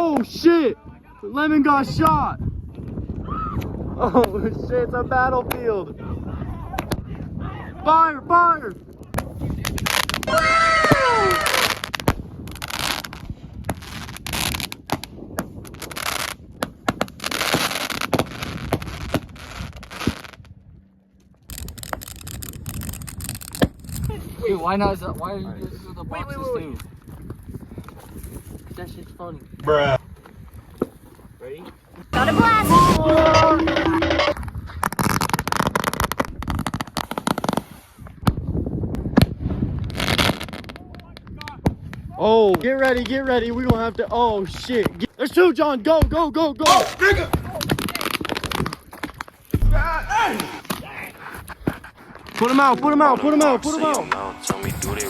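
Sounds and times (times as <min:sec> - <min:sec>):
fireworks popping and crackling: 0:08.8 - 0:20.6, 0:21.4 - 0:24.1, 0:32.2 - 0:43.9, 0:46.8 - 0:55.0
firecracker cracks: 0:21.5 - 0:24.1
fireworks hissing: 0:32.2 - 0:33.2
firework bangs: 0:49.6 - 0:50.8.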